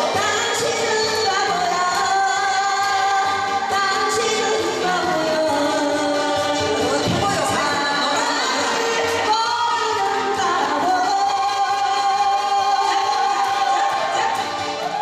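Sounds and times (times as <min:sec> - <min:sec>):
person singing: 0:00.0 - 0:15.0.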